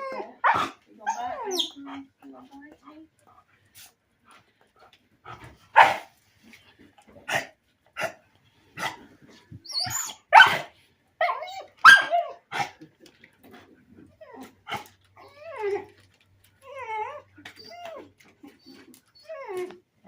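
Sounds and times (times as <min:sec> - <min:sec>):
dog barking: 0:00.4 - 0:00.8, 0:05.7 - 0:06.1, 0:10.3 - 0:10.7, 0:11.8 - 0:12.7
dog whining: 0:09.6 - 0:10.3, 0:11.2 - 0:12.4, 0:15.2 - 0:19.8.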